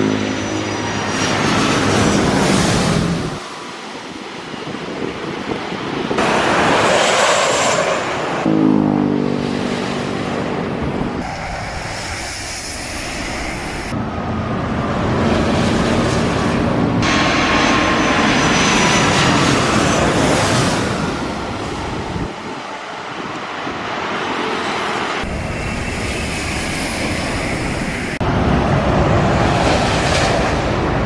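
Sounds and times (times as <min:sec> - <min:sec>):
jet engines running: 0:00.0 - 0:31.0
wind on microphone: 0:01.0 - 0:08.5, 0:09.4 - 0:24.3.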